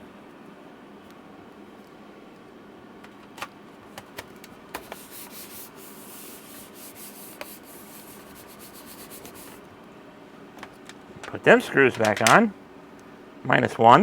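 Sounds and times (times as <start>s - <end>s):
hands rubbing laptop case: 4.0s - 9.6s
light clicks and taps: 10.6s - 12.4s.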